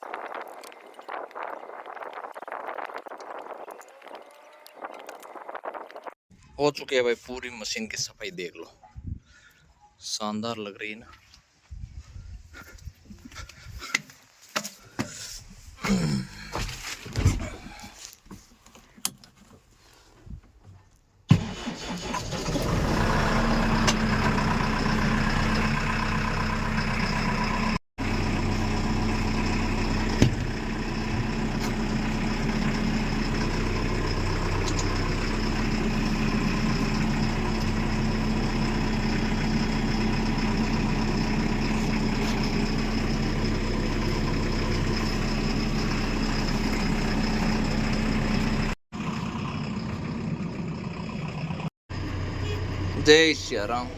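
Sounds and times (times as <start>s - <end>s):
diesel engine starting and idling: 21.3s - 53.9s.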